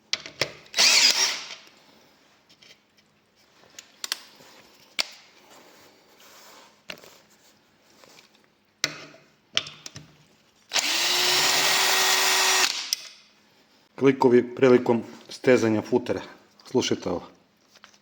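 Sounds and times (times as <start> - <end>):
cordless drill motor running: 0.8 - 1.5, 10.7 - 12.8.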